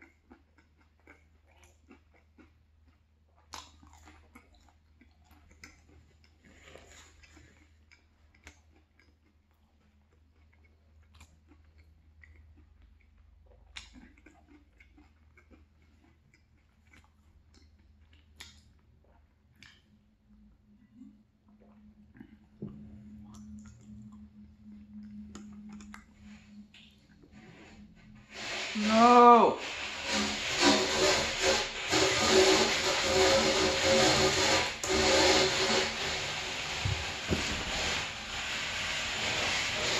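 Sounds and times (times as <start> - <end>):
person chewing: 0.0 - 27.6.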